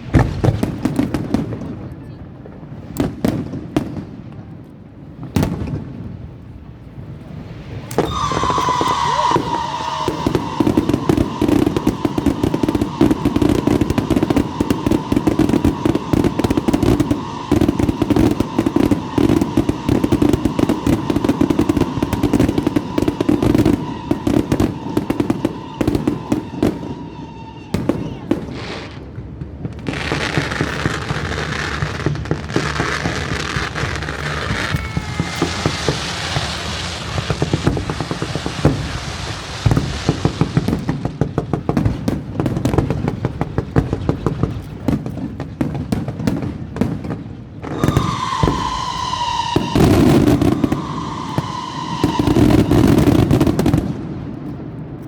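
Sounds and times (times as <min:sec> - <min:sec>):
fireworks cracks and bangs: 0:00.0 - 0:55.0
fireworks whistle: 0:07.4 - 0:43.2, 0:47.6 - 0:54.5.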